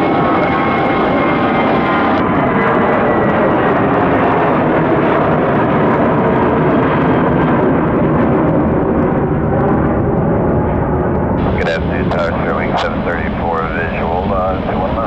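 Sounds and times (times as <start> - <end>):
jet airliner engines at takeoff: 0.0 - 15.0
faint high whine: 11.4 - 15.0.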